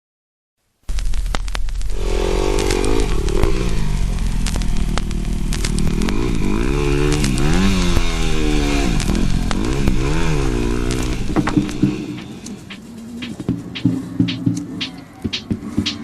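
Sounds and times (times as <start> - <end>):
pit bike engine revving: 1.9 - 16.0.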